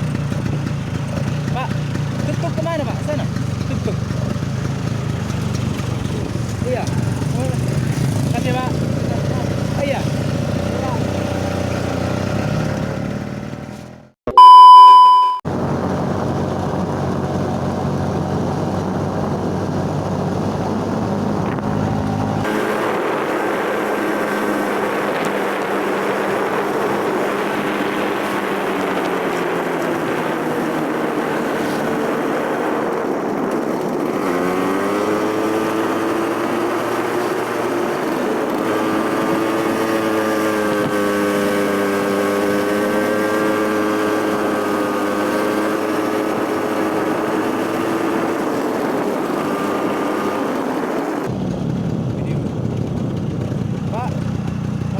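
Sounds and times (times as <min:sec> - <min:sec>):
motor scooter engine: 0:00.0 - 0:14.5, 0:15.5 - 0:54.9
road and wind noise: 0:00.0 - 0:54.9
loud steady beep tone: 0:14.3 - 0:15.4.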